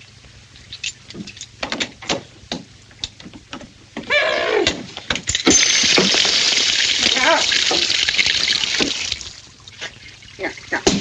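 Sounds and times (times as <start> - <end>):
water gushing out: 5.6 - 10.9.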